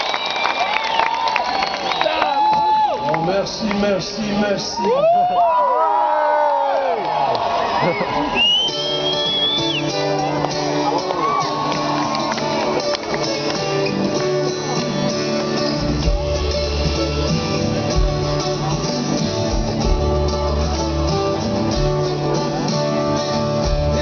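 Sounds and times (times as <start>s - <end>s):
guitar playing: 8.5s - 24.0s
deep bass notes: 15.8s - 24.0s.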